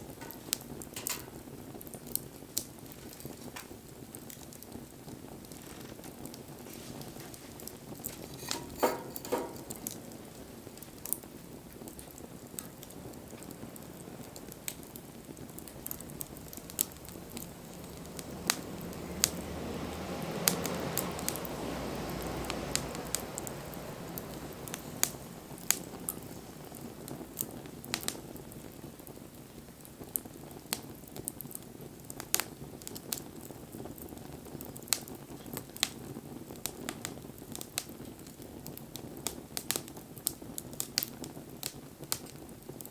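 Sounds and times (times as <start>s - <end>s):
wood fire crackling: 0.0s - 42.9s
soft rushing sound: 16.4s - 26.0s.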